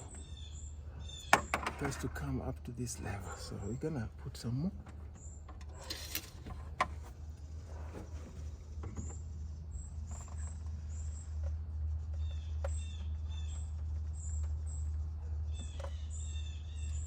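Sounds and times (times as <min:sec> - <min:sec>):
small bird chirping: 0:00.0 - 0:02.3, 0:08.4 - 0:17.0
steady low hum: 0:00.0 - 0:17.0.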